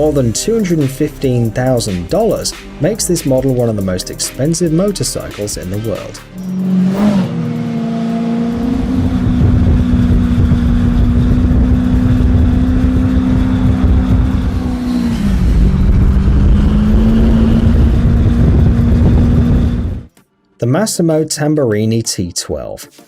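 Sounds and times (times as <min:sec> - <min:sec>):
motorcycle engine revving: 0:05.5 - 0:20.1.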